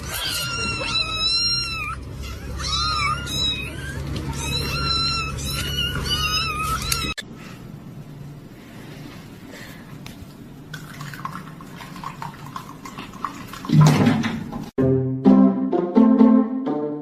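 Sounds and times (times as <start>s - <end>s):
cat meowing: 0.0s - 7.2s.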